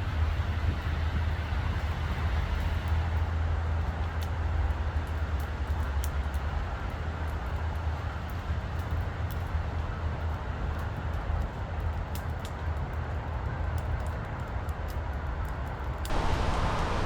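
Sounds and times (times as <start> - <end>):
campfire crackling: 13.8 - 17.0
distant road traffic rumble: 16.1 - 17.0.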